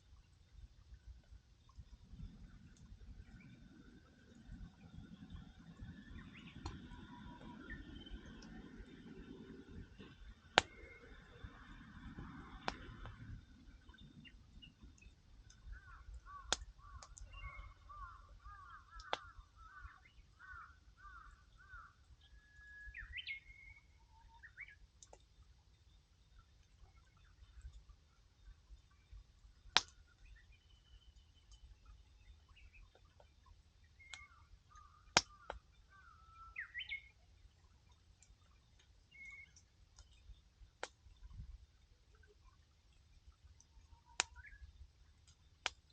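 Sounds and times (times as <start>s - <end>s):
bird calling in whistled notes: 4.8s - 9.7s, 10.6s - 24.8s, 29.9s - 33.0s, 33.8s - 37.2s, 39.0s - 40.4s, 43.9s - 44.8s
bird calling: 15.6s - 24.8s, 34.0s - 37.1s.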